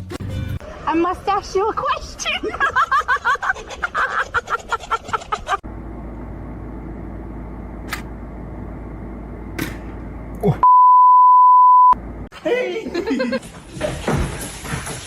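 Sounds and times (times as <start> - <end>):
low steady hum: 5.7 - 12.3
steady electronic beep: 10.6 - 12.0.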